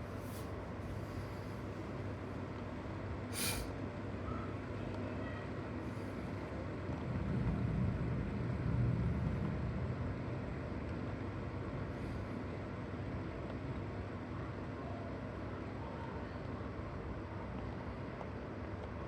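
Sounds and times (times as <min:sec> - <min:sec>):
short sharp hiss: 0:03.3 - 0:03.7.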